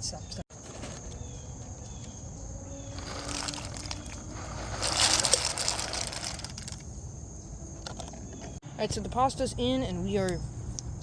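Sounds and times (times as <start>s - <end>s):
dry pasta rattling into water: 3.0s - 6.9s.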